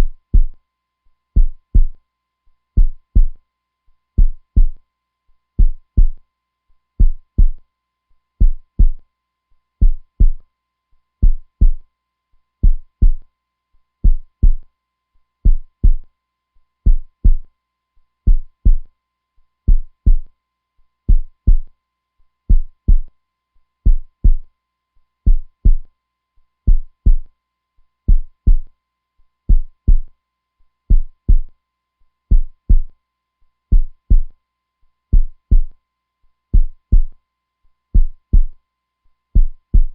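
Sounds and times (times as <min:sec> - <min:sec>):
heartbeat thumps: 0:00.0 - 0:00.6, 0:01.4 - 0:02.0, 0:02.8 - 0:03.4, 0:04.2 - 0:04.8, 0:05.6 - 0:06.2, 0:07.0 - 0:07.6, 0:08.4 - 0:09.0, 0:09.8 - 0:10.4, 0:11.2 - 0:11.8, 0:12.6 - 0:13.2, 0:14.0 - 0:14.6, 0:15.5 - 0:16.0, 0:16.9 - 0:17.4, 0:18.3 - 0:18.9, 0:19.7 - 0:20.3, 0:21.1 - 0:21.7, 0:22.5 - 0:23.1, 0:23.9 - 0:24.4, 0:25.3 - 0:25.9, 0:26.7 - 0:27.3, 0:28.1 - 0:28.7, 0:29.5 - 0:30.1, 0:30.9 - 0:31.5, 0:32.3 - 0:32.9, 0:33.7 - 0:34.3, 0:35.1 - 0:35.7, 0:36.6 - 0:37.2, 0:38.0 - 0:38.6, 0:39.4 - 0:39.9.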